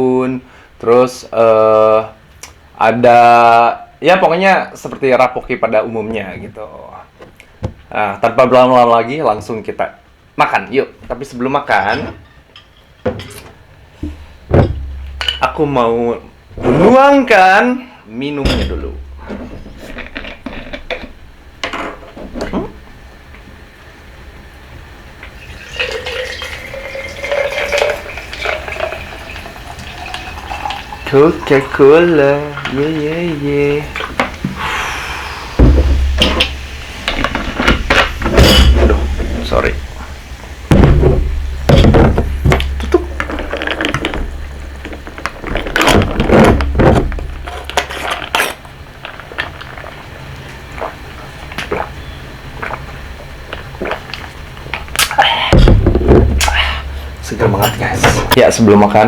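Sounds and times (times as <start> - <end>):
glass knocking and clinking: 14.5 - 15.6, 18.4 - 19.4, 25.5 - 31.6, 35.6 - 39.5, 40.7 - 45.0
cola pouring into glass: 25.2 - 33.1
fizzing: 25.3 - 45.5
bottle being capped: 25.4 - 31.8
person sipping: 33.8 - 35.6, 56.4 - 57.2
glass clinks: 57.6 - 58.0.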